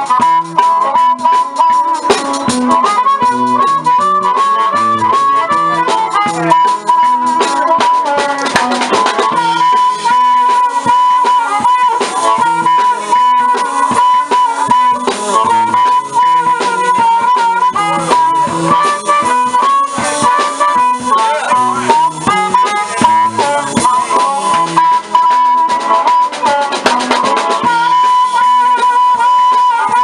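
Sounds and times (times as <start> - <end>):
blues harmonica playing: 0.0 - 30.0
guitar accompaniment: 0.0 - 30.0.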